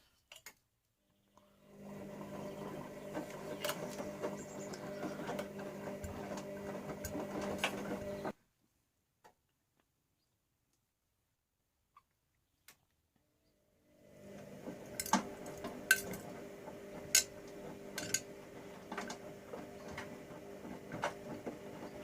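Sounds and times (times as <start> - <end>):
washing machine motor whine: 1.5 - 8.4, 13.8 - 22.0.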